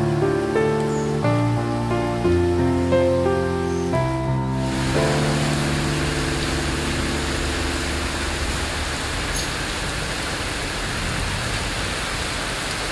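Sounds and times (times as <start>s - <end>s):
background music: 0.0s - 9.0s
heavy rain on pavement: 0.0s - 12.9s.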